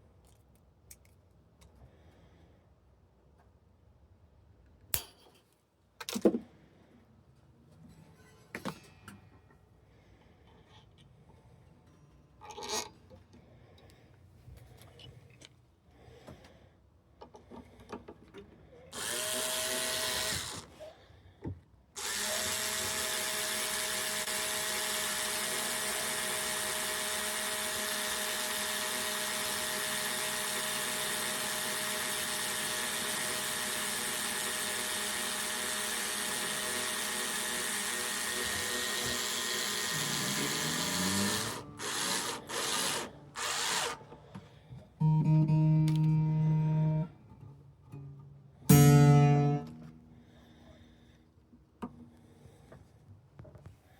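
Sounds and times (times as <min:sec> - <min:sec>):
handheld power tool running: 0:19.0 - 0:20.7, 0:22.0 - 0:44.1
acoustic guitar strummed: 0:45.0 - 0:50.2.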